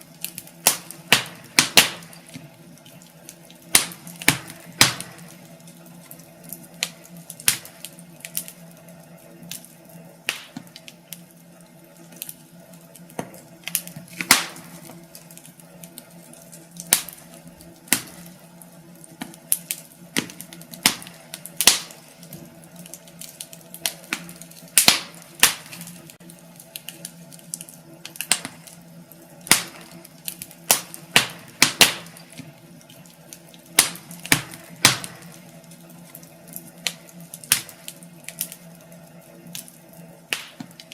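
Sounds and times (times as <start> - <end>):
sharp pops and snaps of fire: 0.0 - 40.9
steady low hum: 0.0 - 40.9
wood fire crackling: 0.0 - 40.9.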